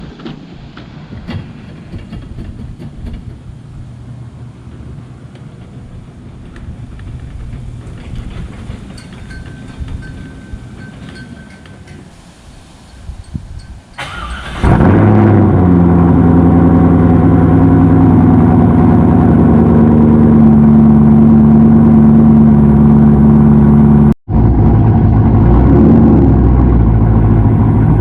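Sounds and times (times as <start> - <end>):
car engine droning: 0.0 - 28.0.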